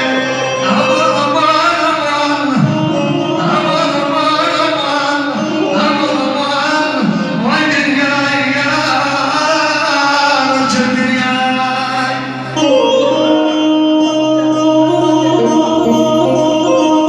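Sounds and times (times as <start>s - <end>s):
instrumental accompaniment: 0.0s - 3.5s, 14.9s - 17.0s
man singing melismatic phrases: 14.8s - 17.0s.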